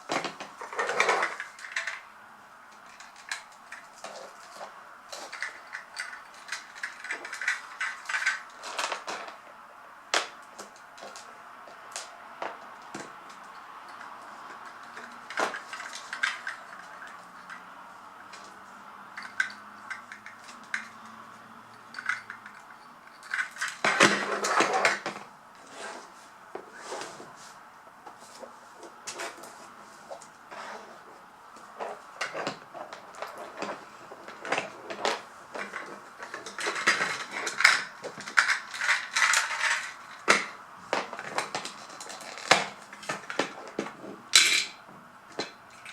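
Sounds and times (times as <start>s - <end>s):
plastic toy parts clicking: 5.3s - 9.0s, 22.0s - 24.2s, 35.7s - 40.5s.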